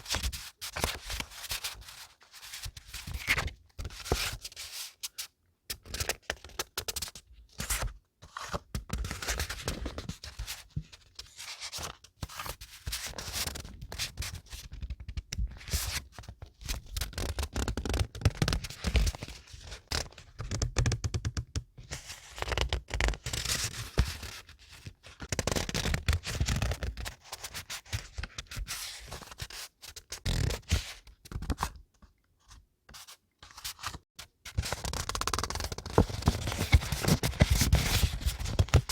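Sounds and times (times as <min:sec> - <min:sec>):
paper rustling and crinkling: 0:34.8 - 0:38.9.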